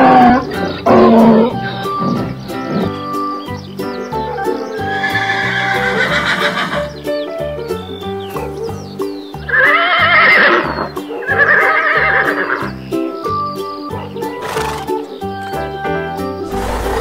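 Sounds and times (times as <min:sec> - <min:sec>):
background music: 0:00.0 - 0:17.0
horse whinnying: 0:04.8 - 0:06.9, 0:09.5 - 0:12.7, 0:14.4 - 0:15.1, 0:16.5 - 0:17.0.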